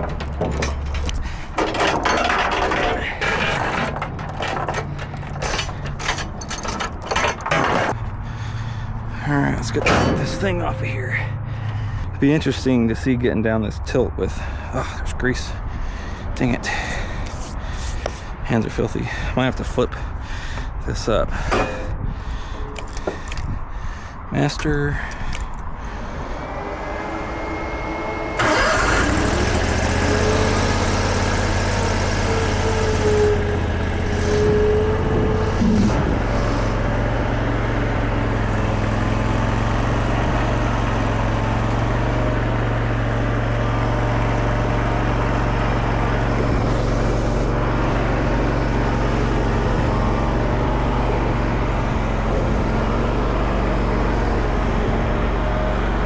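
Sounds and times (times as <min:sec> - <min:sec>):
skid steer engine running: 0:00.0 - 0:12.4, 0:25.8 - 0:56.0.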